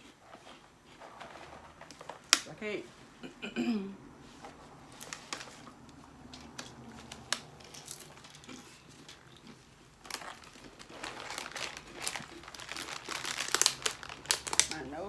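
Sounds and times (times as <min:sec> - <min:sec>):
chip bag crinkling: 0:04.4 - 0:15.0.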